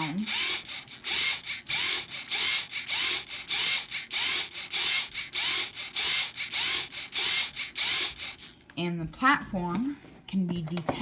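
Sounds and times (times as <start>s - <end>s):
motor whirring in short bursts: 0.0s - 8.6s.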